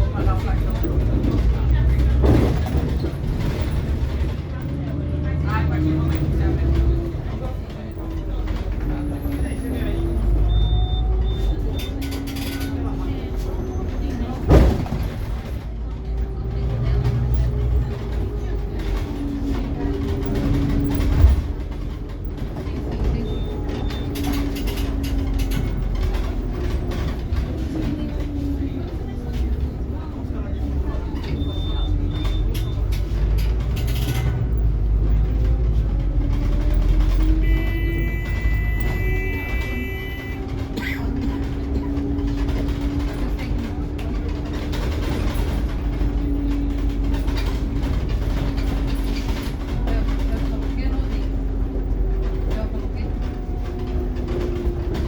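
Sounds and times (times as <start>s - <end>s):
bus drivetrain drone: 0.0s - 55.0s
interior rattles and clicks: 0.0s - 55.0s.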